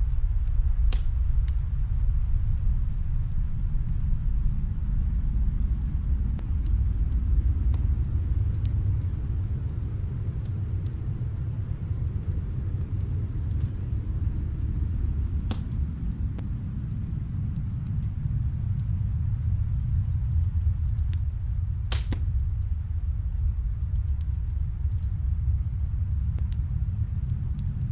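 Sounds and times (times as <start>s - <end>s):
low rumble: 0.0s - 27.9s
wood fire crackling: 0.0s - 27.9s.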